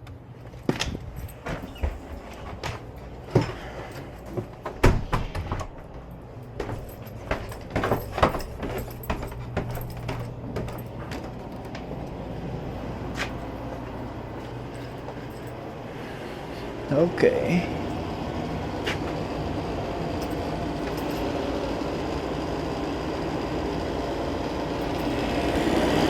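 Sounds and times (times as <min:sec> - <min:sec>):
tools knocking and clattering: 0:00.0 - 0:12.0
gas furnace humming: 0:00.0 - 0:26.0.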